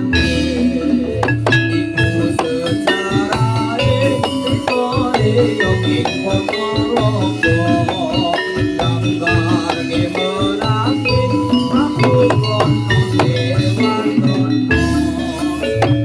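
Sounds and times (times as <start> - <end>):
low drum beats: 0.0 - 16.0
metallophones ringing melody: 0.0 - 16.0.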